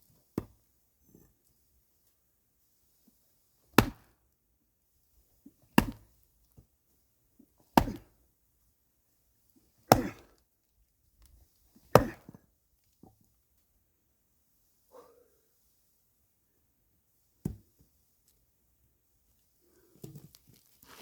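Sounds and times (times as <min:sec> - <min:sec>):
axe splitting firewood: 0:03.7 - 0:04.1, 0:05.8 - 0:06.1, 0:07.7 - 0:08.2, 0:09.8 - 0:10.4, 0:11.8 - 0:12.4.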